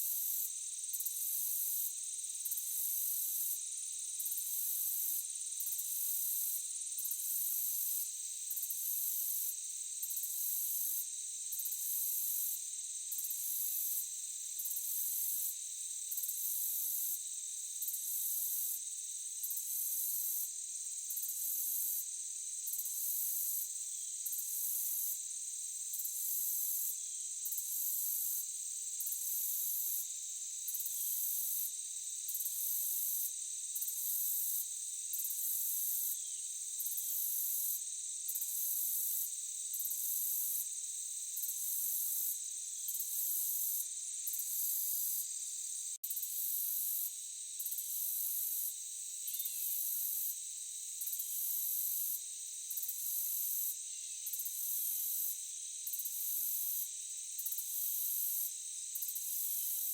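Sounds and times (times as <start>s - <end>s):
crickets trilling: 17.0s - 59.9s
pulsing high insect call: 49.2s - 49.9s.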